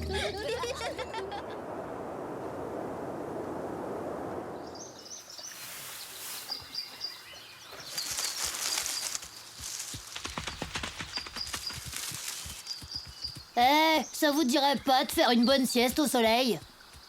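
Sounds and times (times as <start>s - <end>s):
soft rushing hiss: 0.5s - 10.1s
small birds chirping: 4.6s - 17.0s.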